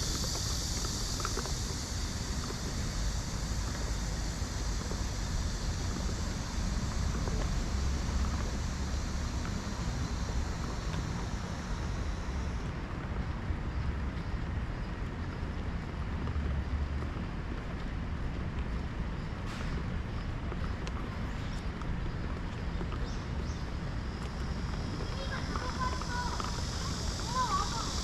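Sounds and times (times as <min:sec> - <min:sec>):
steady general hiss: 0:00.0 - 0:13.9, 0:21.1 - 0:28.0
wind rumbling on microphone: 0:00.0 - 0:28.0.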